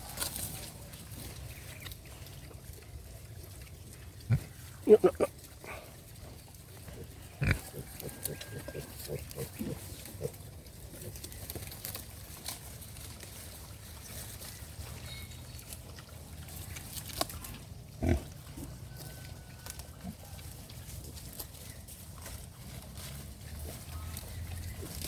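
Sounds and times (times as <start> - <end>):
pigs grunting: 2.0 - 11.8, 16.5 - 18.8.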